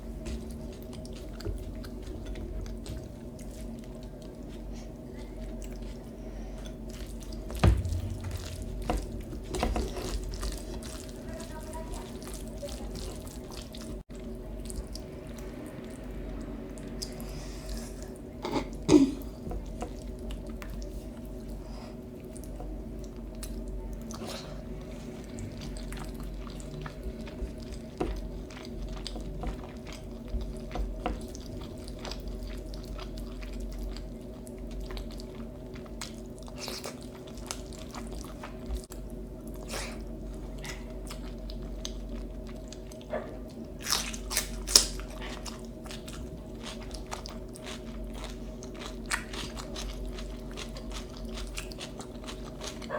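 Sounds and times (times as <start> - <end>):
chewing and crunching: 0.0 - 52.9
low hum: 7.4 - 12.4.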